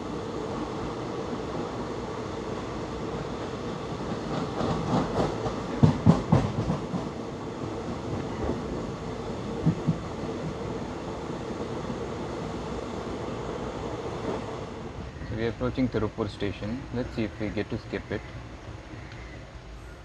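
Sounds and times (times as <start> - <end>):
train rumble: 0.0 - 20.0
wheels clattering over track: 4.0 - 7.2.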